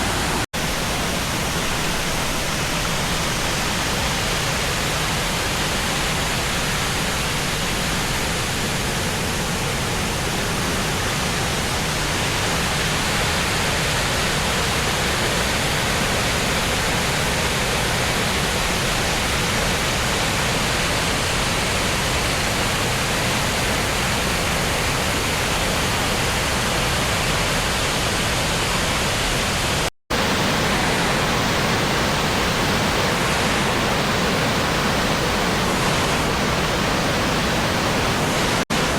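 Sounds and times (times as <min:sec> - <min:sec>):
waterfall rushing: 0:00.0 - 0:15.6, 0:26.0 - 0:38.9.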